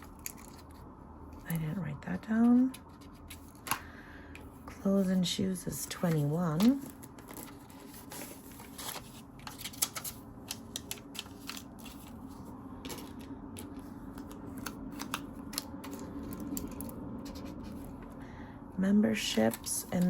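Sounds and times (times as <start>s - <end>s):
low steady hum: 0.0s - 20.0s
paper money rustling: 5.7s - 18.0s.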